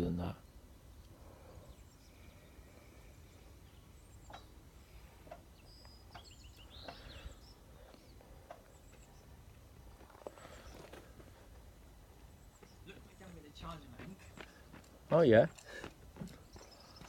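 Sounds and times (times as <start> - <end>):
bird chirps: 0.4 - 9.4, 12.3 - 14.7, 16.2 - 17.0.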